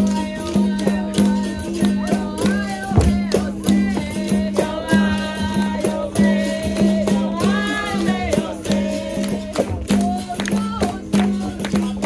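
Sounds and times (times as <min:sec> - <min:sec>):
voices singing: 0:00.0 - 0:12.0
pandeiro taps: 0:02.9 - 0:04.1.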